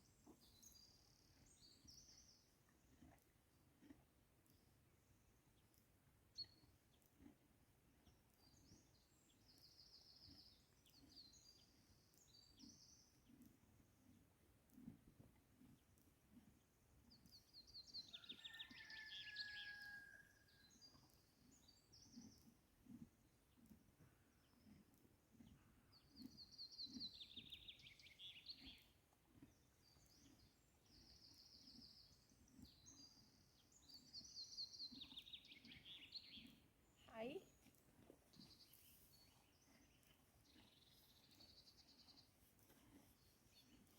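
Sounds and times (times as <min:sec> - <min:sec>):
songbird singing: 0:08.4 - 0:13.4, 0:17.2 - 0:22.6, 0:24.3 - 0:42.4.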